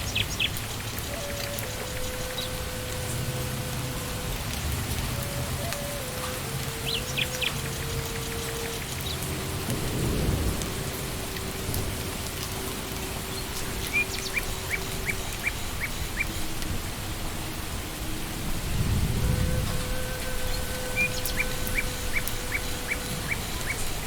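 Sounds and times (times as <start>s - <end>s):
rain falling on leaves: 0.0s - 24.0s
distant thunder rumble: 9.2s - 14.8s.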